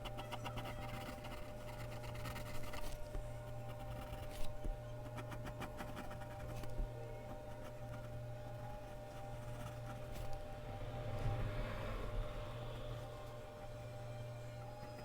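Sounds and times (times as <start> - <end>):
pencil scratching on paper: 0.0 - 10.4
low electrical hum: 0.0 - 15.0.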